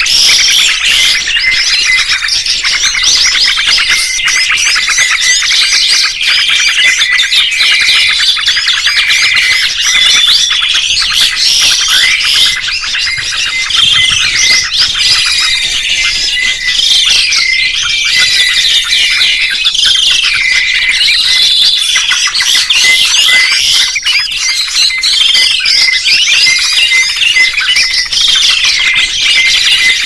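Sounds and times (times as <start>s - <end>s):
songbirds chirping: 0.0s - 30.0s.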